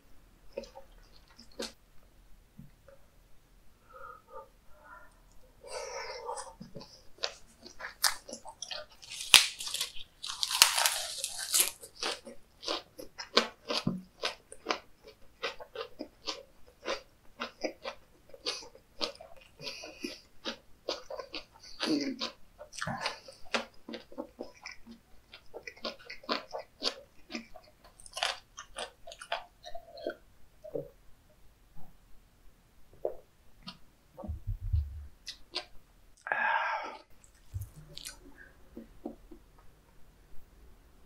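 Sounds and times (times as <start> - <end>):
man chewing wet smacks: 5.3 - 30.8, 37.1 - 39.5.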